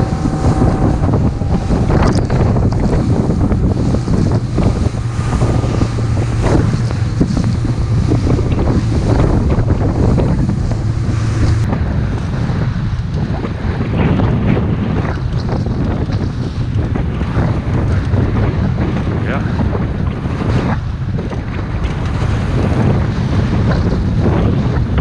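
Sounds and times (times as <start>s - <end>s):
hull splashing through waves: 0.0s - 13.9s
boat engine drone: 0.0s - 25.0s
wind buffeting microphone: 0.0s - 25.0s.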